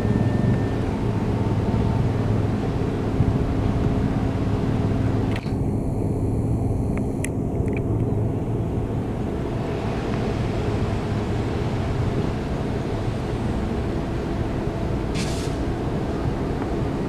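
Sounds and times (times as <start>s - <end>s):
sharp clicks: 5.3s - 5.6s
train wheels rumbling on rails: 6.5s - 17.0s.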